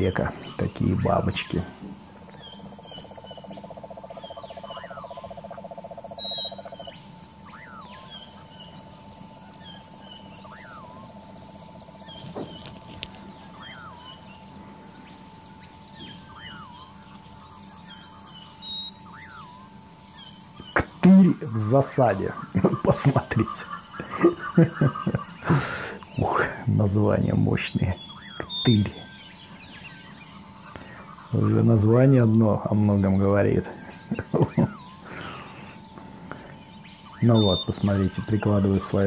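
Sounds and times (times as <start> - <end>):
rapid buzzing trill: 0.0 - 39.0
steady hum: 0.0 - 39.0
bird chirps and whistles: 6.2 - 8.8, 9.5 - 11.1, 13.4 - 14.4, 15.2 - 20.9, 36.7 - 38.4.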